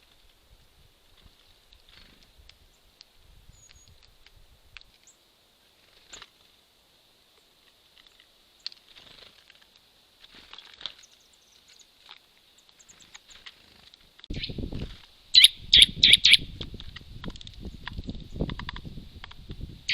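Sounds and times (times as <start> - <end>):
small songbirds chirping: 1.1 - 19.9.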